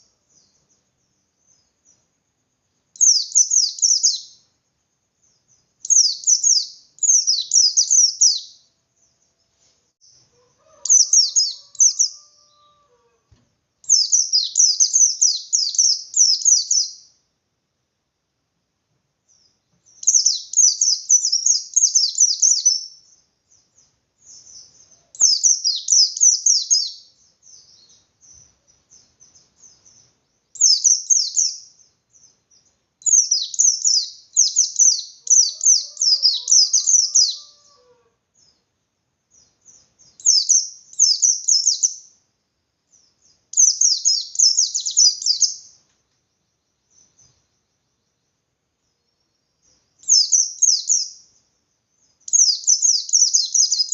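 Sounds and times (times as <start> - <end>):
bird rapid chirp volleys: 3.0 - 12.2, 13.8 - 17.2, 19.3 - 37.4, 43.0 - 53.9.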